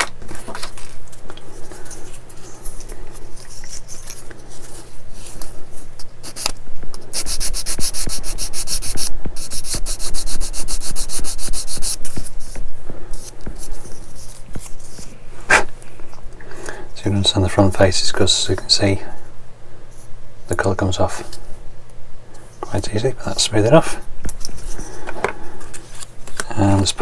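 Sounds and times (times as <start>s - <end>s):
sanding plastic by hand: 6.2s - 12.6s.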